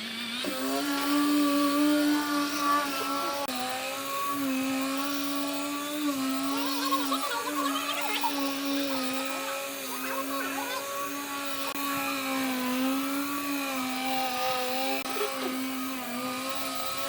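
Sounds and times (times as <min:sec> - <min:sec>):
lathe motor whine: 0:00.0 - 0:17.0.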